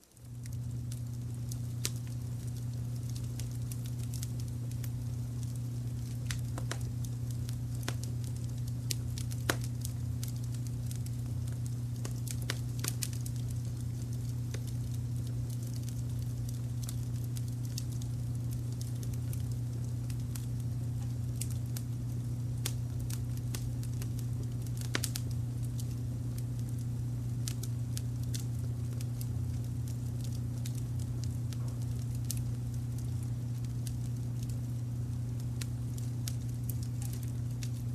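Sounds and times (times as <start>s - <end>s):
wood fire crackling and popping: 0.0s - 37.9s.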